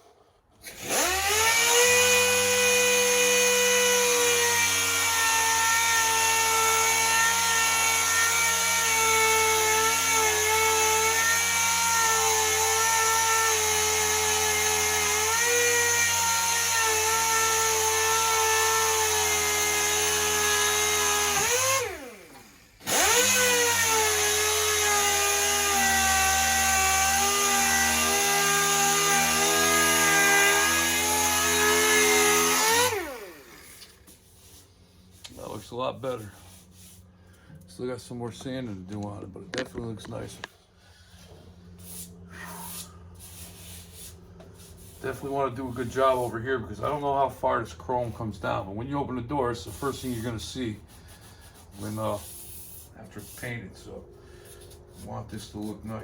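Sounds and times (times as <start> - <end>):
power sander whining: 0.7 - 34.6.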